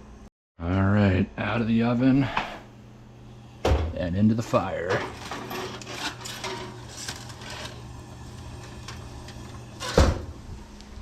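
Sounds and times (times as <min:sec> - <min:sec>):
steady low hum: 0:00.0 - 0:11.0
foil baking pan clattering: 0:04.8 - 0:07.8.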